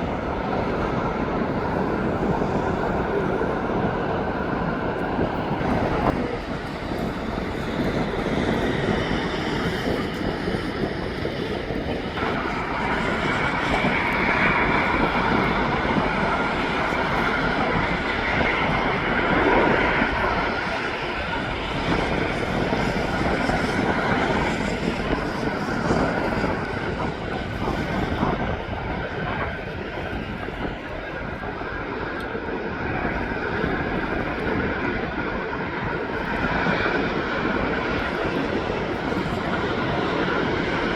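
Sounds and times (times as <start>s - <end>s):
jet engines whining: 0.0s - 40.9s.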